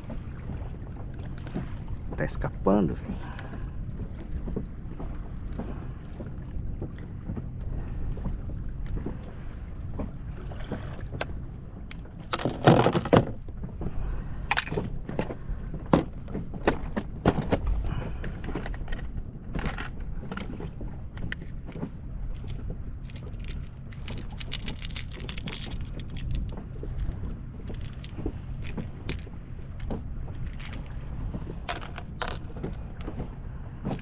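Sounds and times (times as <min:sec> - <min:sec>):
low wind: 0:00.0 - 0:34.0
water noise: 0:00.0 - 0:34.0
fishing gear knocking and clicking: 0:11.9 - 0:13.4, 0:14.4 - 0:15.3, 0:18.4 - 0:31.0, 0:31.6 - 0:33.2.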